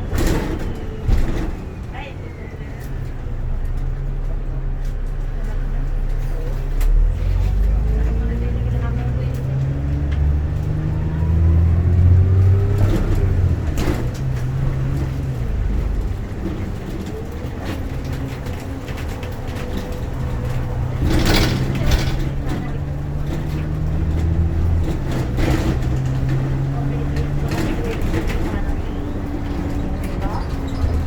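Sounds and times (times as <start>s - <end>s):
bus engine whine: 0.0s - 31.0s
knocks and rattles: 11.3s - 31.0s.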